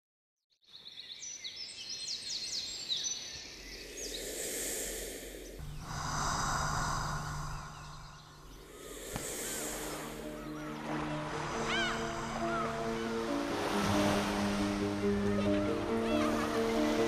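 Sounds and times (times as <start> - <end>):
birds chirping: 0.7 - 17.0
breathy whooshing swell: 3.6 - 17.0
low steady drone: 3.8 - 16.1.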